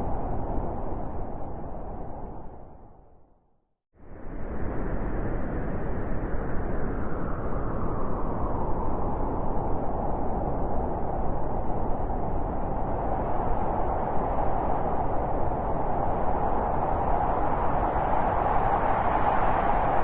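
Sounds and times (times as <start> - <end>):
howling blizzard wind: 0.0 - 3.3, 4.0 - 20.0.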